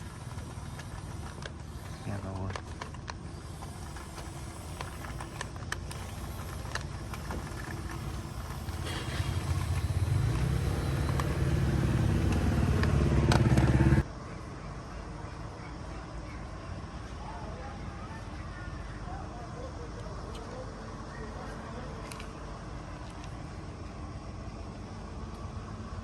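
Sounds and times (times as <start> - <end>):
motor humming: 0.0 - 14.1.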